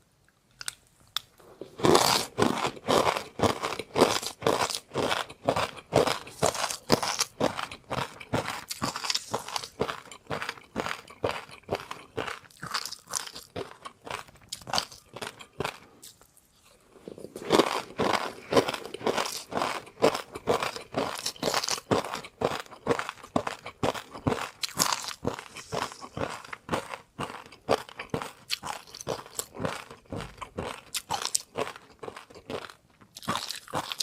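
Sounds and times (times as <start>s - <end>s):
person chewing crunchy food: 0.5s - 34.0s.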